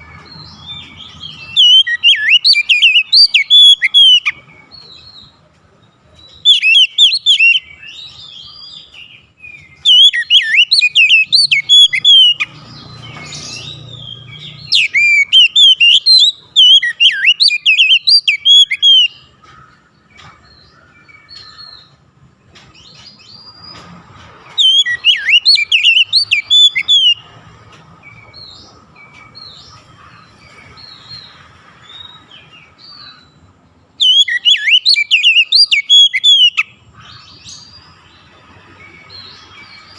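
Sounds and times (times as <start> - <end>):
bird singing whistles and chirps: 0.0 - 5.3, 6.2 - 19.3, 24.4 - 27.3, 30.4 - 37.8.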